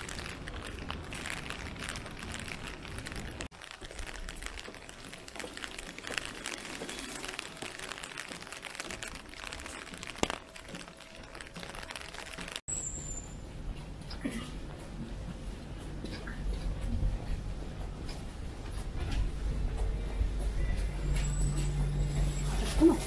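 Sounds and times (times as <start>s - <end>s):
rain pattering on street: 0.0s - 12.6s.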